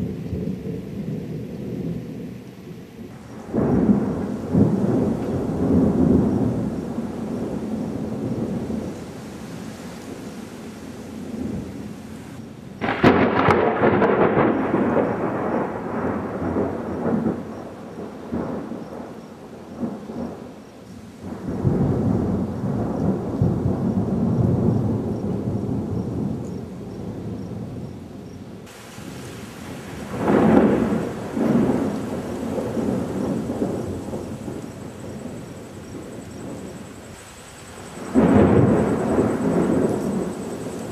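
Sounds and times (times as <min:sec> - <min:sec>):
thunder cracking and rumbling: 0:03.0 - 0:40.9.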